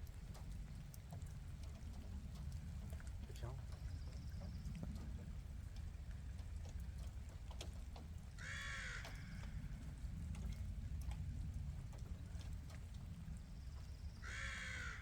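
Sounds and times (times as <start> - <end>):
faint ticks: 0.0 - 8.3, 8.9 - 13.9
crow cawing: 8.4 - 9.4, 14.2 - 15.0.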